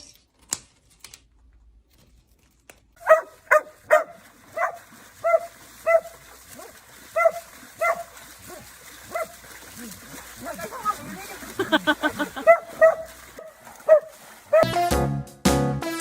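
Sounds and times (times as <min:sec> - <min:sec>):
dog barking: 0:03.0 - 0:09.4, 0:10.4 - 0:14.8.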